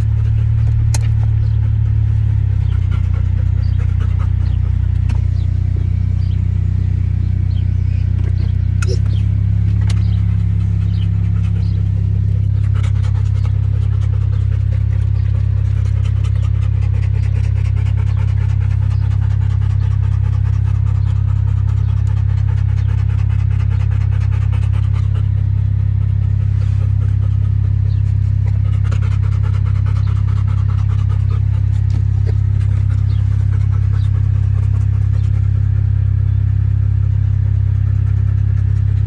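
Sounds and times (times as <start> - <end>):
loud low rumble: 0.0 - 37.9.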